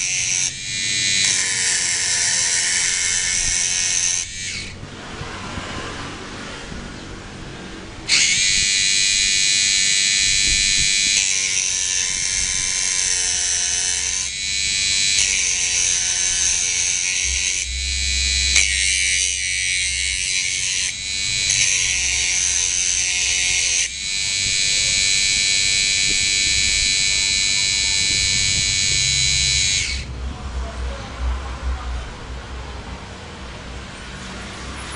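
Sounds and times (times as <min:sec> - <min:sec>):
mini grinder motor whining: 0:00.0 - 0:05.2, 0:08.1 - 0:30.1.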